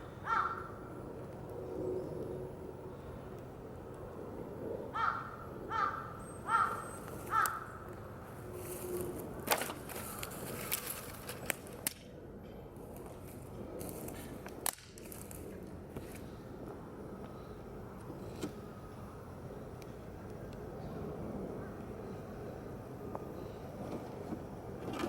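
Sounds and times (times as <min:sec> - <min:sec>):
crow cawing: 0:00.0 - 0:00.8, 0:04.9 - 0:07.8
campfire popping and cracking: 0:14.1 - 0:15.5.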